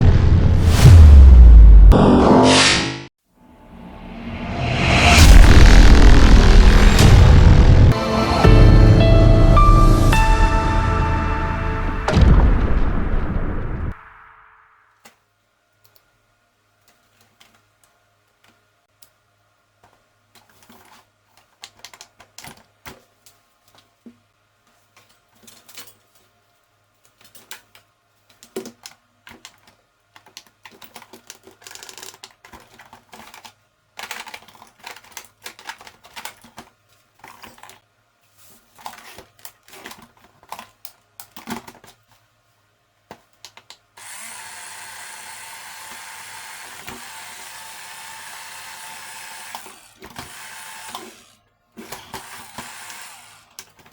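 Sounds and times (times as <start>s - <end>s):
hard plastic parts clicking: 27.1s - 37.8s
small motor running: 44.0s - 51.4s.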